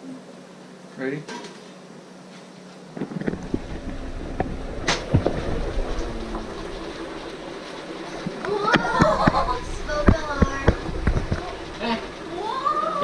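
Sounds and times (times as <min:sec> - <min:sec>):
low rumbling churn: 0:03.0 - 0:13.0
water bubbling violently: 0:03.4 - 0:12.9.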